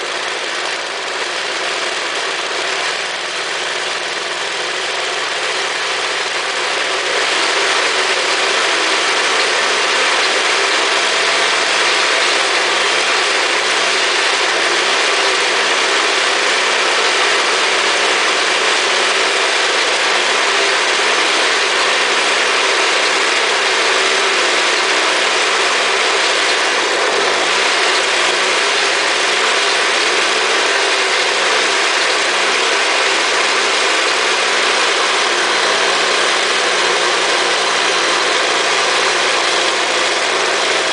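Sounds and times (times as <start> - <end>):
snow blower engine running: 0.0 - 40.9.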